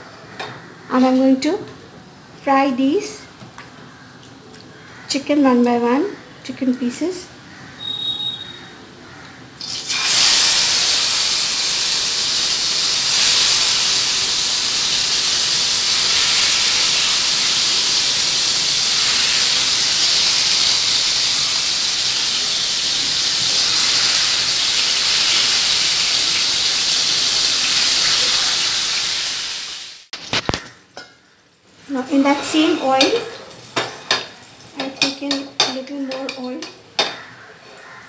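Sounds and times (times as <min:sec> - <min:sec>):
chicken sizzling in hot oil: 0:09.6 - 0:30.6.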